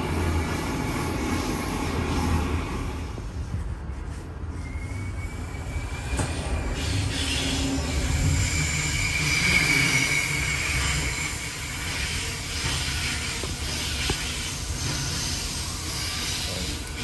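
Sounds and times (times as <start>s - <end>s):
electric train rumbling on rails: 0.0s - 17.0s
train wheels squealing: 4.5s - 17.0s.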